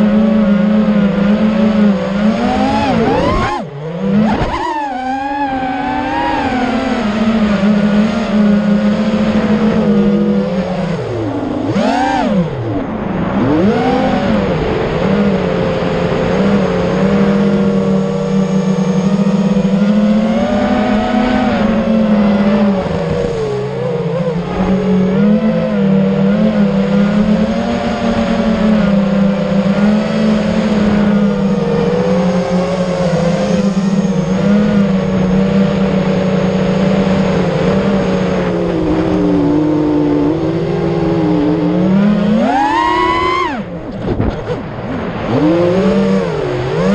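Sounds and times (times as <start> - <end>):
drone propellers whining: 0.0 - 46.9.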